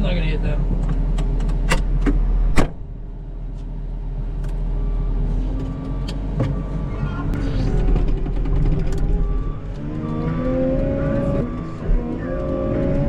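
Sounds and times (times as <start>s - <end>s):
wheel loader diesel engine: 0.0s - 13.0s.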